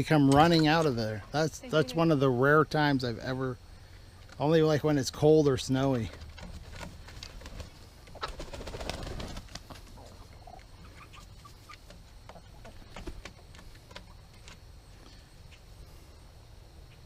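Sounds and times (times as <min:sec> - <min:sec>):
chickens clucking: 0:00.0 - 0:02.2, 0:05.8 - 0:17.0.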